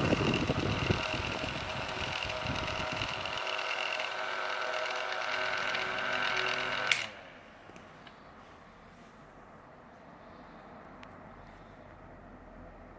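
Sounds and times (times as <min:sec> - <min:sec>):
electric fan running: 0:00.0 - 0:12.9
fan switch click: 0:06.8 - 0:07.2.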